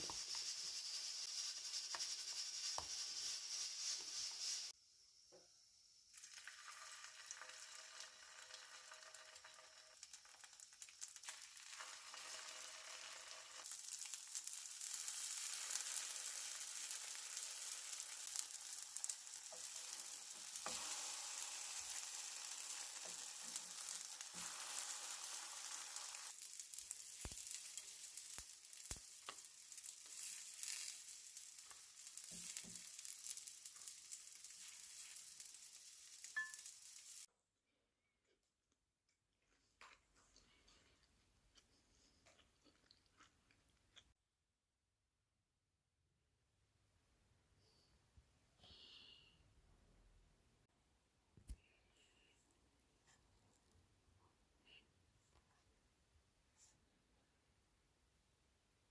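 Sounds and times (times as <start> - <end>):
food sizzling in a pan: 0.0 - 37.3.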